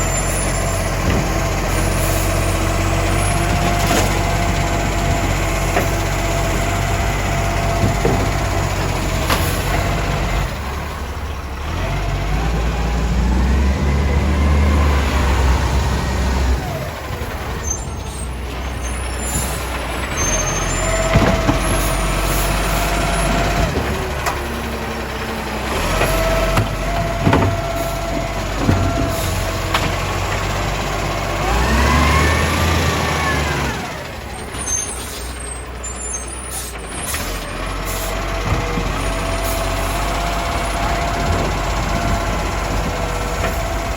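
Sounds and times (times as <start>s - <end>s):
garbage truck engine running: 0.0s - 43.9s
sharp clunks: 20.2s - 21.9s.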